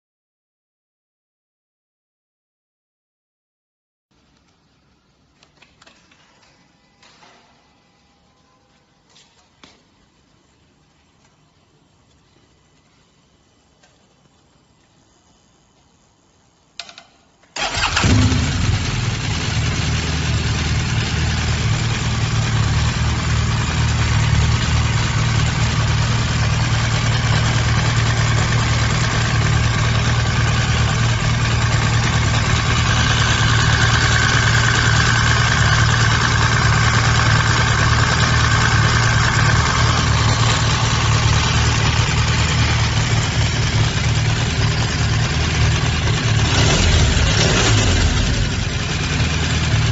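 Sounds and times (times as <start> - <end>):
motorcycle starter click: 16.8 - 18.5
motorcycle engine idling: 17.6 - 49.9.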